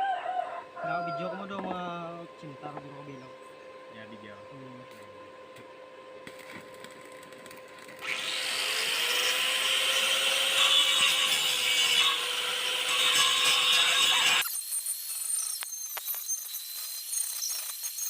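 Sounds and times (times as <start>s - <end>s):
arc welding crackling hiss: 12.9s - 18.0s.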